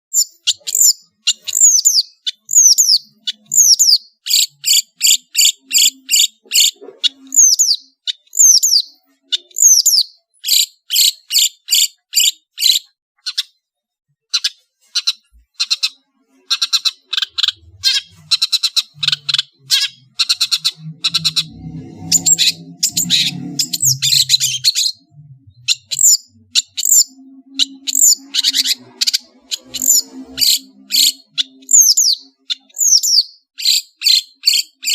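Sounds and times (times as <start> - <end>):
shrike singing: 16.5 - 34.9.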